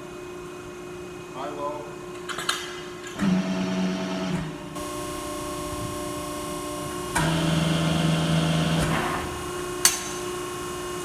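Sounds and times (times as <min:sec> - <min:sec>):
machine humming steadily: 0:03.1 - 0:11.0.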